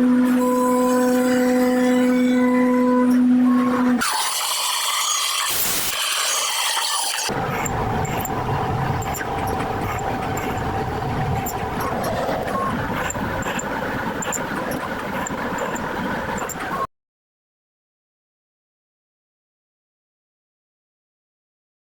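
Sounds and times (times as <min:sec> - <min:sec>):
machine mechanical hum: 0:00.0 - 0:04.0, 0:06.7 - 0:16.9.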